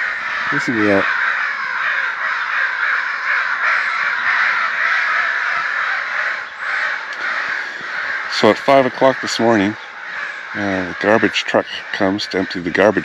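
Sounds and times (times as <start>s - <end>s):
chorus of many birds calling: 0.0s - 13.0s.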